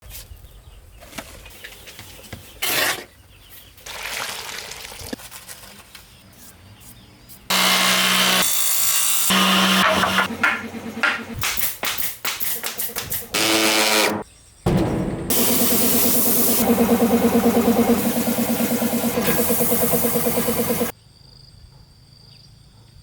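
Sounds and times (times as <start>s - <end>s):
power tool cutting wood: 7.5s - 11.6s, 12.6s - 14.2s, 15.3s - 20.9s
hand saw strokes: 7.5s - 14.2s.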